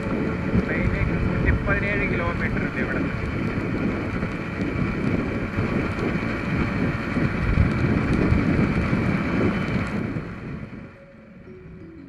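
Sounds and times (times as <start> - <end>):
motorcycle engine running: 0.0 - 12.0
wind rushing over microphone: 0.0 - 12.0.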